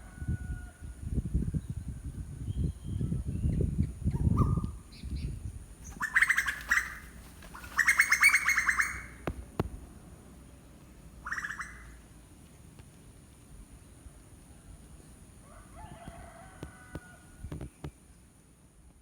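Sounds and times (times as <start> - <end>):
bird chattering calls: 5.8 - 9.2, 11.2 - 12.0.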